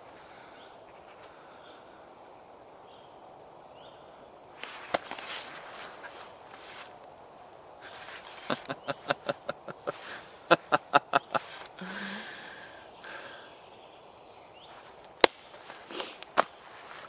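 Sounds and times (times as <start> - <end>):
man laughing heartily: 8.3 - 12.5
breath out: 11.8 - 13.6, 15.8 - 16.3.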